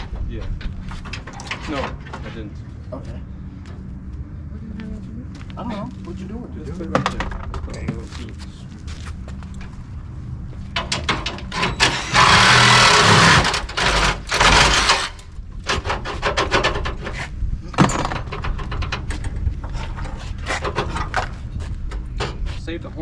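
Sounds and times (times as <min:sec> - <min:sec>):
tools clanking on metal: 0:00.0 - 0:02.4.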